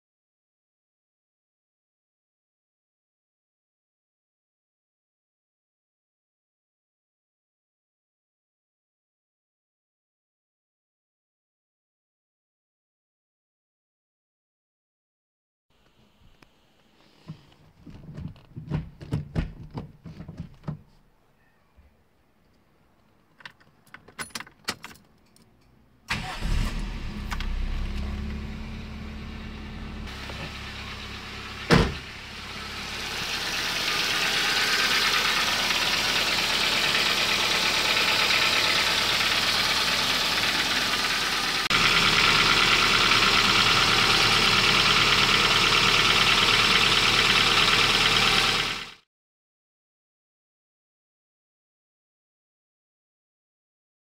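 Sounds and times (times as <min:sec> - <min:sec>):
car engine starting and running: 0:25.6 - 0:49.0.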